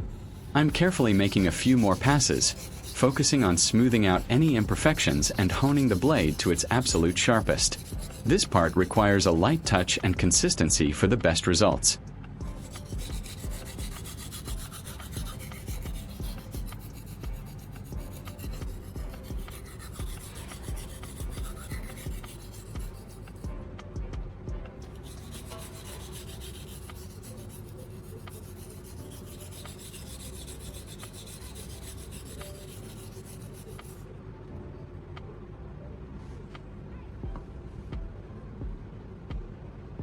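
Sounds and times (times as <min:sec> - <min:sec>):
knife scraping on whetstone: 0:00.0 - 0:10.4, 0:12.5 - 0:23.5, 0:24.8 - 0:34.0.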